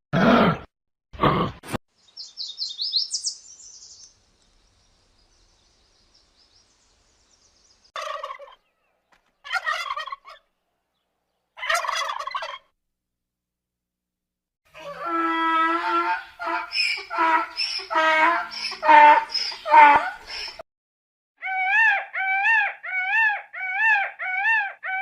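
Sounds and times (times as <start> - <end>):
high chirps: 2.1 - 4.2
turkey gobbling: 8.0 - 8.6, 9.4 - 10.5, 11.6 - 12.7, 14.8 - 20.6, 21.4 - 25.0.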